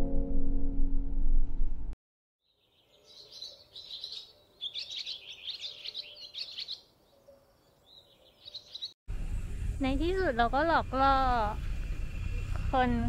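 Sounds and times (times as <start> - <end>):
small birds twittering: 2.5 - 9.7.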